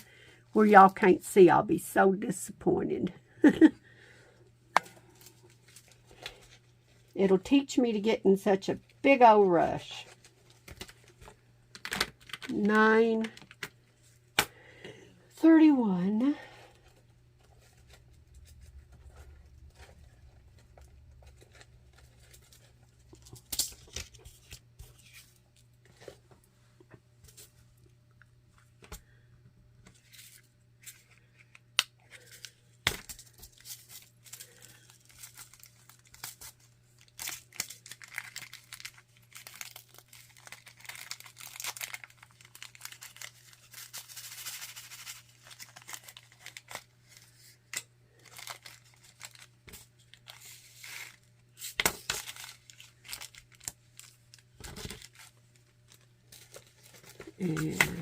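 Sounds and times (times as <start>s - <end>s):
plastic bags crinkling: 32.2s - 51.4s, 52.0s - 58.0s.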